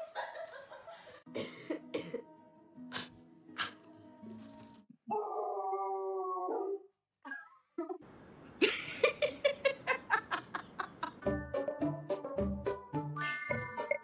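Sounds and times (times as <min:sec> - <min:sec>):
dog howling: 0:05.1 - 0:06.8.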